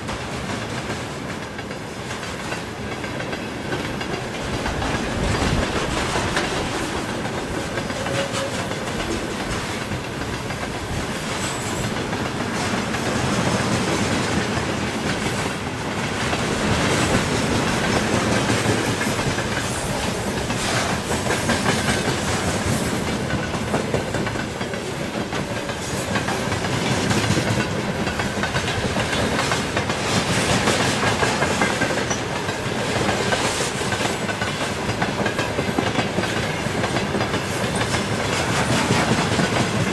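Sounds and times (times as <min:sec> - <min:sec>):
high wheel squeal: 0:00.0 - 0:16.7, 0:19.7 - 0:25.6, 0:32.2 - 0:39.9
freight train rolling: 0:00.0 - 0:39.9
wheels clacking over rail joints: 0:00.0 - 0:39.9.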